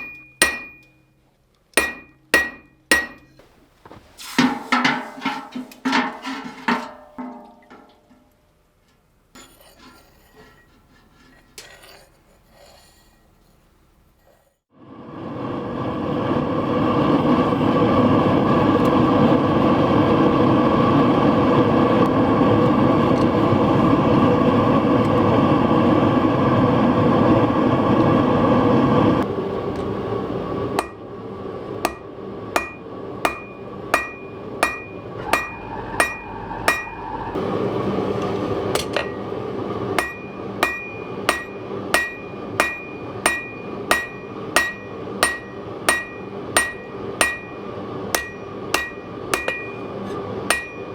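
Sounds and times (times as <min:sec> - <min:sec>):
hammer striking steel on anvil: 0:00.0 - 0:03.4, 0:30.8 - 0:31.0, 0:31.8 - 0:37.1, 0:38.7 - 0:39.3, 0:40.0 - 0:49.9, 0:50.5 - 0:50.9
gas forge burner roaring: 0:00.0 - 0:07.9, 0:13.8 - 0:50.9.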